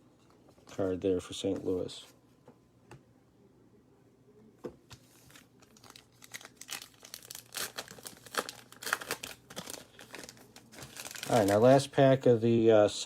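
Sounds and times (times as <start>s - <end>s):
cellophane wrapper crinkling and tearing: 5.1s - 12.0s.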